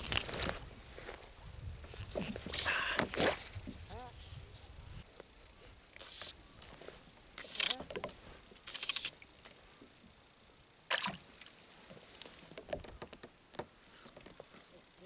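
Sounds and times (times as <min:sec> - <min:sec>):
swishing water splashes: 0:10.9 - 0:11.7.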